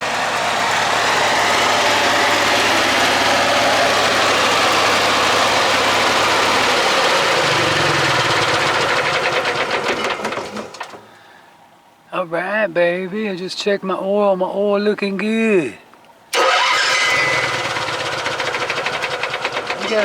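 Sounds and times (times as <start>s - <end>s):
engine running and shutting off: 0.0s - 11.3s, 16.3s - 20.0s.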